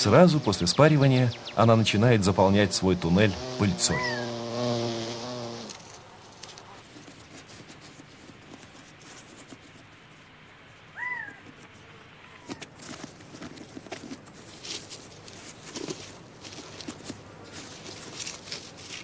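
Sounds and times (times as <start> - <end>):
bird chirp: 0.0 - 1.8
bee buzzing in flight: 0.2 - 6.0
faint scratching and ticking: 4.6 - 19.0.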